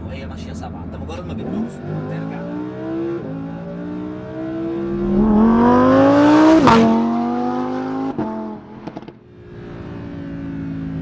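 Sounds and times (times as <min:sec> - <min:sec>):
sports car engine revving: 0:04.6 - 0:08.6.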